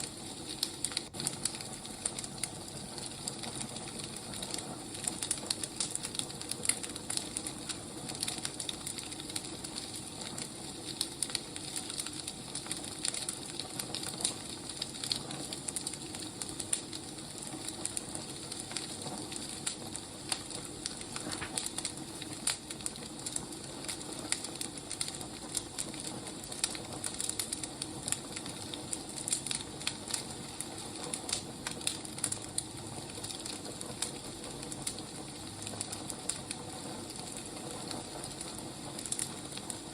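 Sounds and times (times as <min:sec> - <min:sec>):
firewood crackling: 0:00.0 - 0:39.9.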